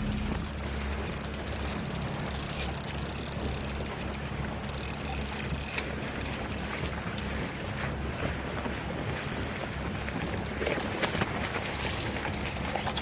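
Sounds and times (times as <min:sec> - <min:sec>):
fishing reel whirring: 0:00.0 - 0:06.9, 0:09.2 - 0:09.8
boat engine running: 0:00.0 - 0:13.0
water noise: 0:00.0 - 0:13.0
wind: 0:00.0 - 0:13.0.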